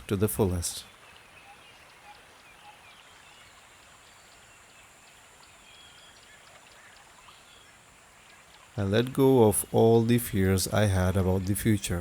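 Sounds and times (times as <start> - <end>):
running water hiss: 0.0 - 12.0
bird chirps: 0.7 - 8.8.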